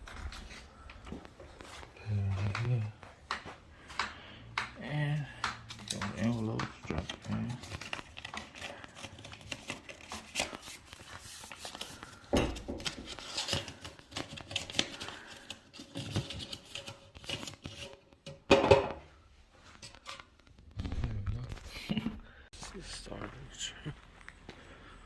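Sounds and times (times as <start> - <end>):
rustling and clicking handling noise: 0.0 - 4.7, 5.4 - 18.5, 19.6 - 21.7.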